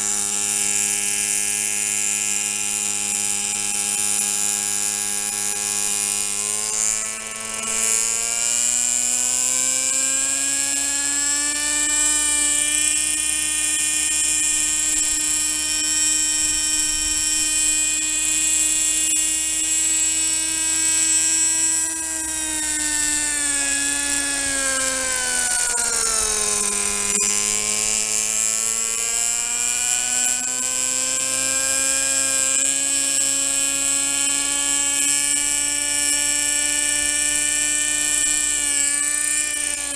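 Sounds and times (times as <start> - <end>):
model helicopter engine whining: 0.0 - 39.9.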